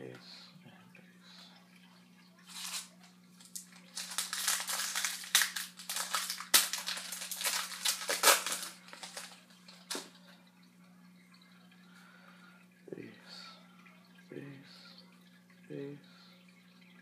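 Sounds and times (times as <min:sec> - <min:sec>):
foil wrapper crinkling: 0:02.4 - 0:10.1
sharp snaps of foil: 0:02.5 - 0:10.1.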